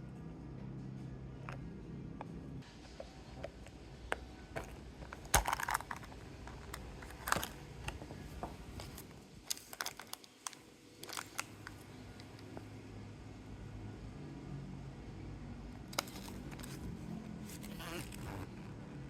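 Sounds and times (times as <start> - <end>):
wrapper crinkling: 5.0 - 7.6, 8.8 - 12.5, 15.9 - 18.5.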